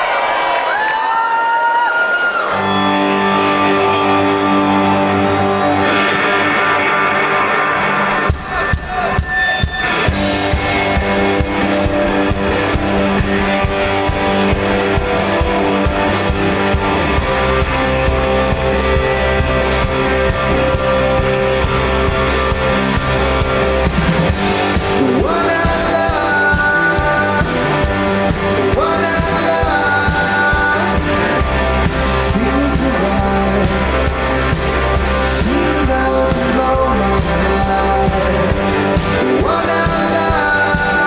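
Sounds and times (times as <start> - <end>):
drums: 0.0 - 41.0
electric guitar chords: 2.4 - 41.0
bass note: 10.1 - 41.0.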